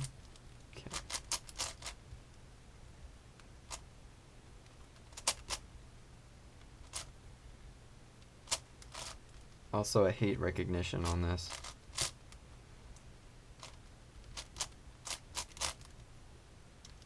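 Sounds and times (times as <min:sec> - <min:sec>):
puzzle cube plastic clicks: 0:00.0 - 0:02.0, 0:04.7 - 0:05.6, 0:08.5 - 0:09.5, 0:11.0 - 0:12.2, 0:13.6 - 0:16.1.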